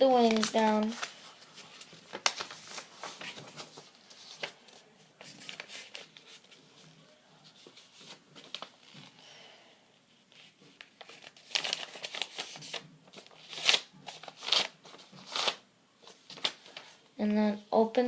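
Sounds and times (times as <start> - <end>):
paper rustling and crinkling: 0.0 - 9.2, 10.1 - 17.0.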